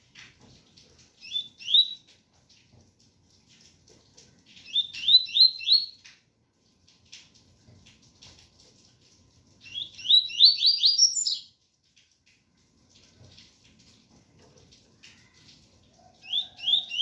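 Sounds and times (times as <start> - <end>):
bird singing whistled notes: 1.2 - 2.0, 4.7 - 6.0, 9.7 - 11.5, 16.3 - 17.0.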